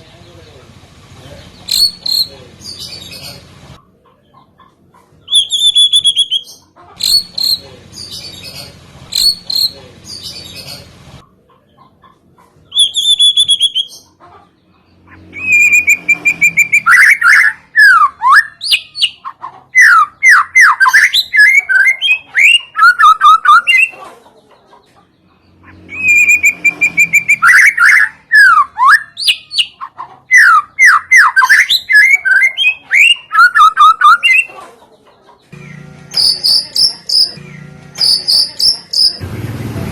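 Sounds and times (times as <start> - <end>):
loud fast varied birdsong: 0.0 - 4.4, 5.2 - 11.8, 12.6 - 34.6, 35.2 - 39.9
songbird whistle and chips: 36.2 - 37.4, 38.0 - 39.2.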